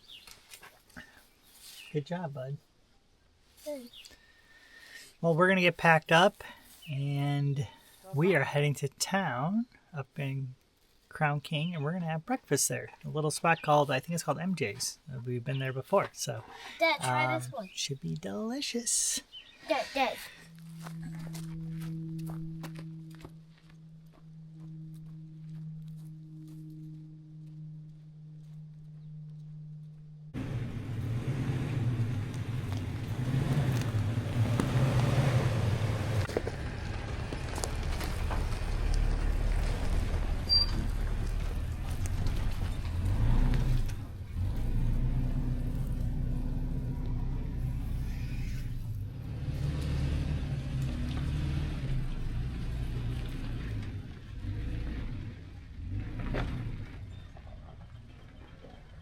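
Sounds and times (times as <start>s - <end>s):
road noise on dirt road: 0.0s - 59.0s
truck engine rumble: 11.2s - 59.0s
low steady hum: 20.2s - 33.3s.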